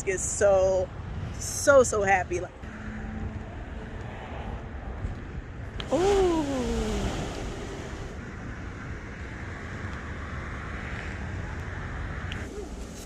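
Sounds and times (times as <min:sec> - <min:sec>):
wind on microphone: 0:00.0 - 0:02.5, 0:04.0 - 0:10.2
ocean surf rushing: 0:05.8 - 0:08.2.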